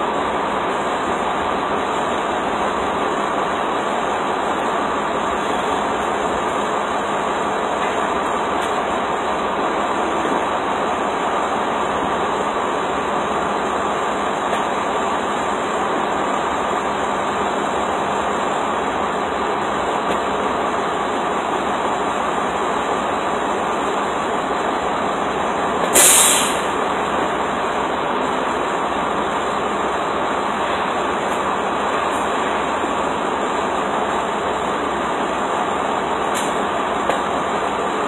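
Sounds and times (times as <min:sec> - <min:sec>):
vehicle noise: 0:00.0 - 0:38.0
short loud hiss: 0:25.9 - 0:26.7.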